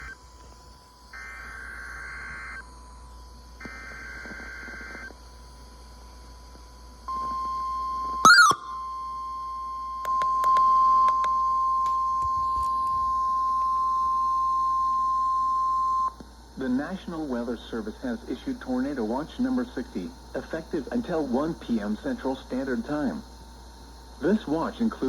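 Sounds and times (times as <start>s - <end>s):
buzzy digital data warble: 0.0s - 0.3s, 1.0s - 5.2s
loud chirp: 8.2s - 8.8s
steady alert tone: 8.3s - 8.7s.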